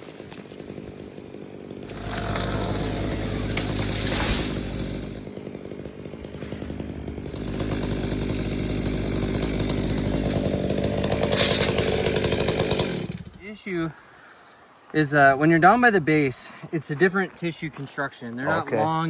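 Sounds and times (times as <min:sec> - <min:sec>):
chainsaw running: 0:00.0 - 0:13.4.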